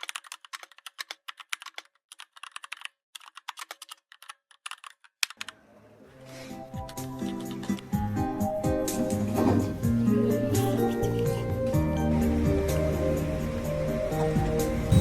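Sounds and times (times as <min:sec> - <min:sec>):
computer keyboard typing: 0:00.0 - 0:05.6, 0:06.8 - 0:08.0
music: 0:06.1 - 0:15.0.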